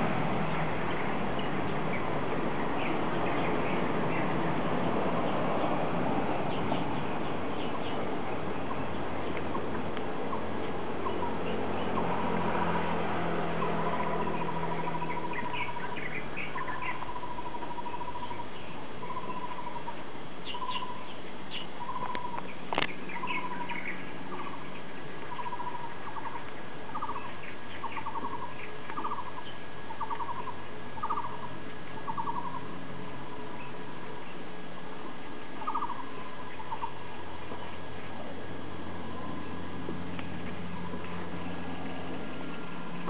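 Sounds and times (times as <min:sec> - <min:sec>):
birds chirping: 0:00.0 - 0:43.0
bird whistling: 0:35.6 - 0:36.9.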